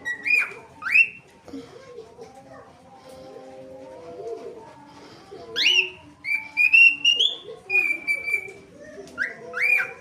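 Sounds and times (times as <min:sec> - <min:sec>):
parakeet whistling: 0:00.0 - 0:01.2, 0:05.6 - 0:08.6, 0:09.2 - 0:10.0.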